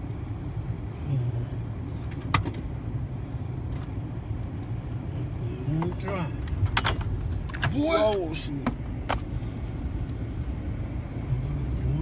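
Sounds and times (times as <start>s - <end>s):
car engine rumbling: 0.0s - 12.0s.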